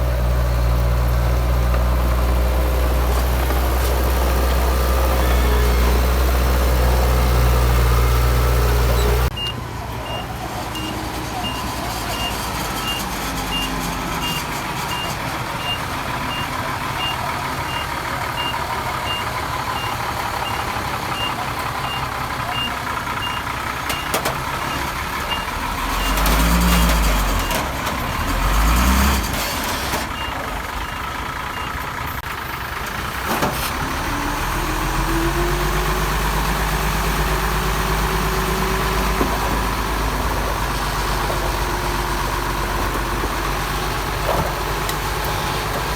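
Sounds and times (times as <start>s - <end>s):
diesel engines: 0.0s - 45.9s
reversing alarm beeping: 9.0s - 24.1s, 30.2s - 31.8s
engine revving: 25.6s - 30.1s.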